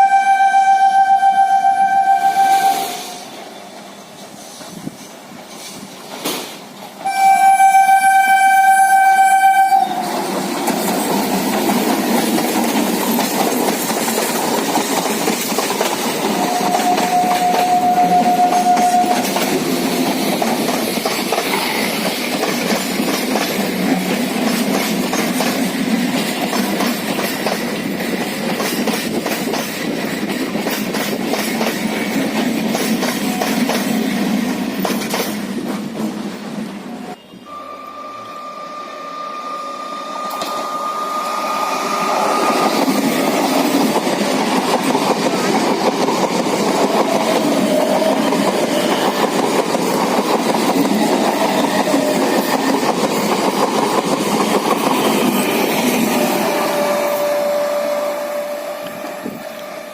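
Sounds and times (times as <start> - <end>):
train horn: 0.0 - 3.4, 7.0 - 10.2, 16.2 - 19.6, 37.1 - 42.9, 51.5 - 52.7, 56.1 - 59.9
train rumble and wheel clatter: 0.0 - 37.5, 38.7 - 59.9.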